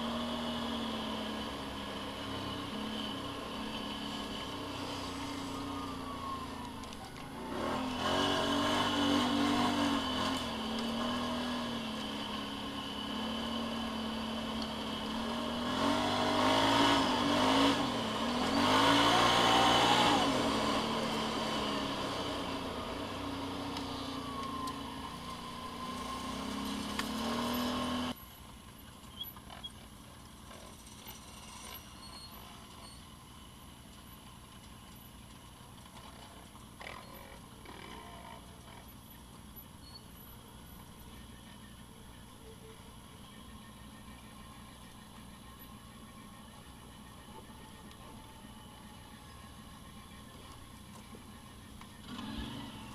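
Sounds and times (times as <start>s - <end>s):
vehicle engine revving: 0.0s - 28.2s, 43.1s - 52.9s.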